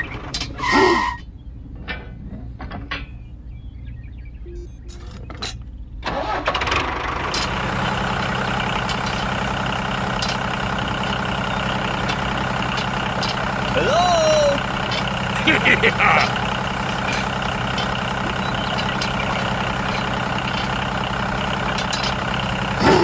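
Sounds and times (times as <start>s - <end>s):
engine starting and idling: 6.0s - 23.0s.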